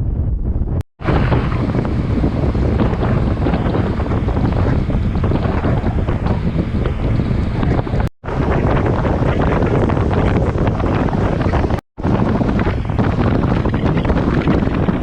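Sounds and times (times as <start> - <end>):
wind buffeting microphone: 0.0 - 15.0
rush of moving boat: 0.6 - 15.0.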